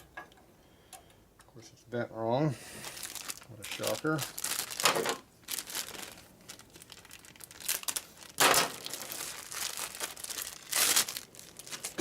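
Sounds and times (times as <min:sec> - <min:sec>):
rustling and handling noises: 0:02.6 - 0:12.0.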